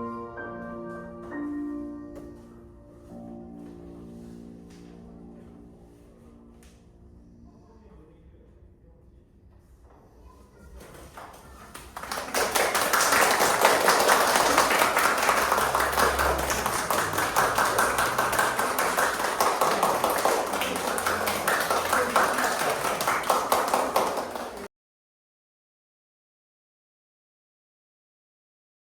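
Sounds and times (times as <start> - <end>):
audience applauding: 11.2 - 24.7.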